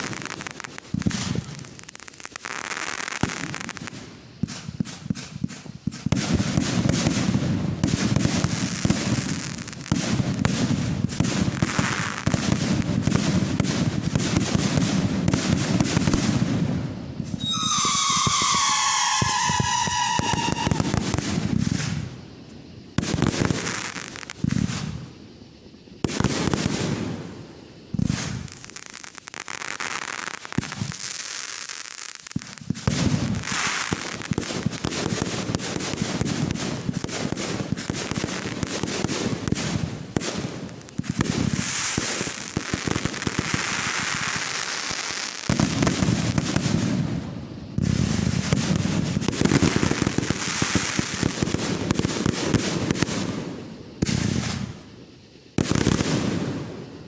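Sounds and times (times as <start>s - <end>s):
fireworks crackling and popping: 0.0s - 57.0s
deep firework booms: 4.4s - 22.3s.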